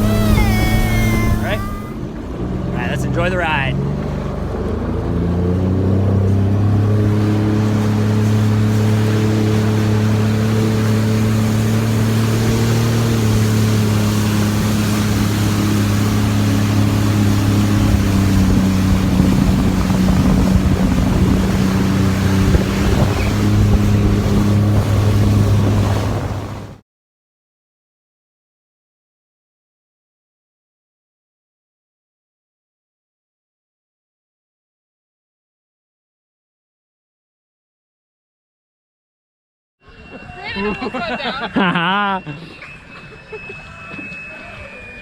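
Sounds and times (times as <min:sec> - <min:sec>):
jet ski engine running: 0:00.0 - 0:26.8, 0:40.0 - 0:45.0
water and wind rushing: 0:00.0 - 0:26.8.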